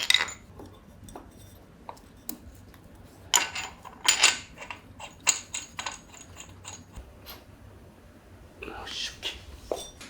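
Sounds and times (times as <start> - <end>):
metal tools clinking and tapping: 0.0 - 2.4, 3.3 - 7.4, 9.7 - 10.0.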